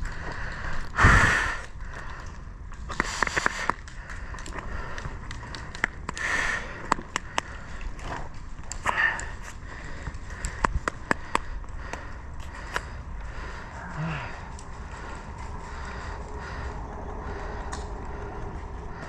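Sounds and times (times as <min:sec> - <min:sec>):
airsoft guns clicking and snapping: 0:00.0 - 0:01.0, 0:01.6 - 0:13.4
wind rumble: 0:00.0 - 0:19.0.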